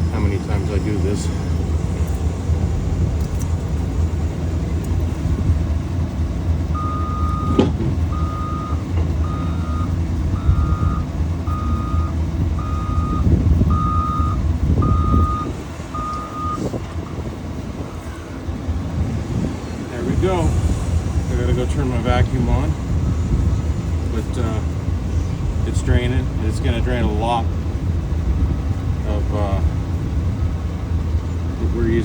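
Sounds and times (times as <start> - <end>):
low engine rumble: 0.0 - 32.0
reversing alarm beeping: 6.7 - 17.2.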